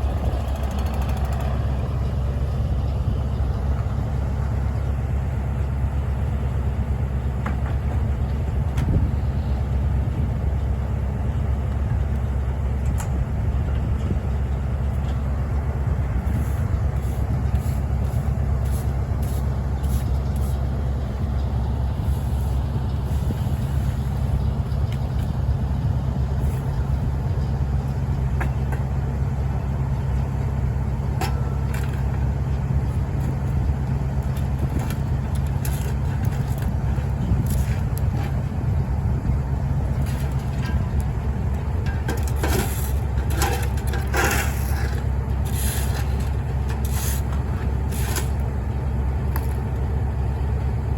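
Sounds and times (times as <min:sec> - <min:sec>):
heavy vehicle engine idling: 0:00.0 - 0:50.9.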